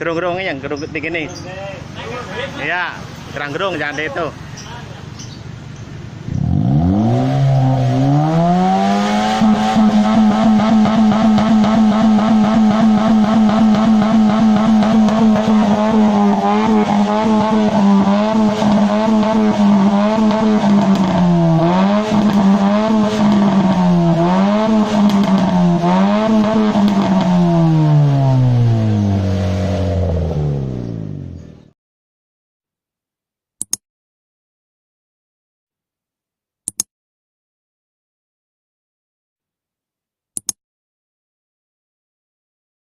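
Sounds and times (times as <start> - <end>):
car engine revving: 6.1 - 31.7.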